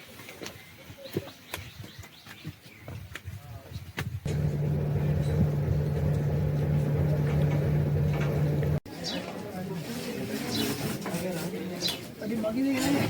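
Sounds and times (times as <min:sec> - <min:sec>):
low engine hum: 0:04.3 - 0:08.8.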